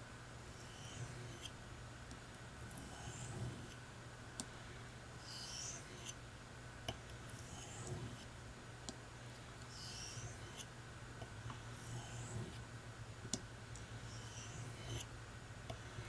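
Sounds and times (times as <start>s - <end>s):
knife scraping on sharpening stone: 0.6s - 1.5s, 5.3s - 6.2s, 9.8s - 10.7s, 14.1s - 15.1s.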